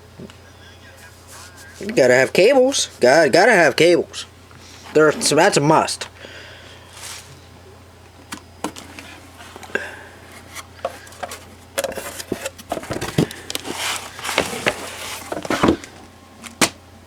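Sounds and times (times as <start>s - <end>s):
packaging being handled: 6.9s - 7.4s, 8.3s - 16.1s
rustling with knocks: 10.4s - 16.0s.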